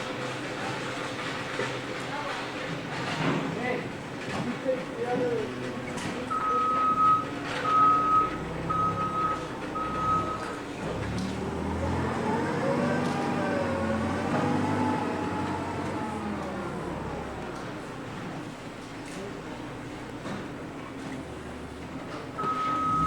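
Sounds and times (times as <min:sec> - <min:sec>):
engine running: 0:05.6 - 0:23.0
vehicle backup alarm beeping: 0:06.0 - 0:12.8, 0:22.3 - 0:23.0.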